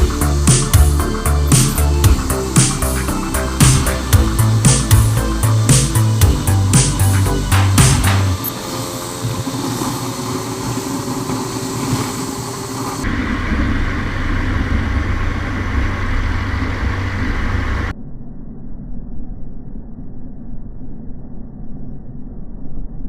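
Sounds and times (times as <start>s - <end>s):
vehicle engine and road noise: 0.0s - 17.9s.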